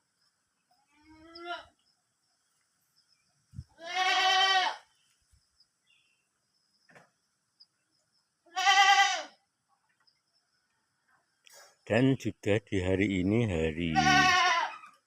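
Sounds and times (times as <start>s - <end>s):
goat bleating: 1.0s - 1.7s, 3.8s - 4.9s, 8.5s - 9.4s, 13.7s - 15.0s.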